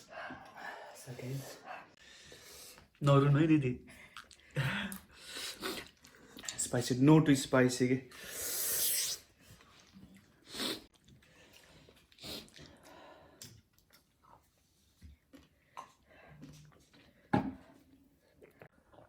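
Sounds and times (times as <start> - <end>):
chewing: 4.0 - 6.6, 9.5 - 17.3, 18.0 - 19.0
sharp hissing breath: 8.2 - 9.3.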